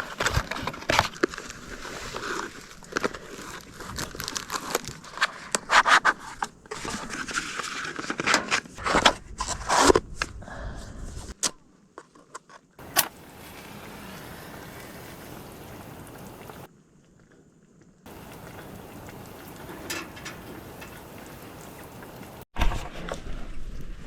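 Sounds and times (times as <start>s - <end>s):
rustling and crinkling: 0.0s - 24.0s
steady hiss: 12.8s - 16.7s, 18.1s - 22.5s.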